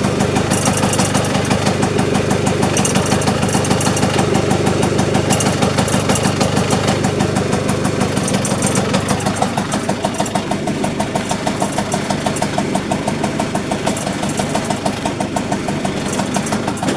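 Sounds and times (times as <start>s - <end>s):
engine idling with pulsing: 0.0s - 16.9s.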